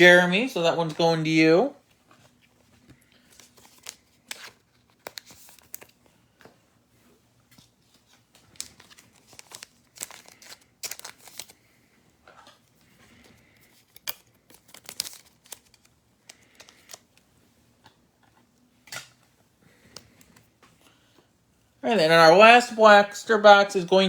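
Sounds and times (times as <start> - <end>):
plastic wrapper crinkling: 3.0 - 6.0, 7.6 - 11.7, 12.4 - 17.3.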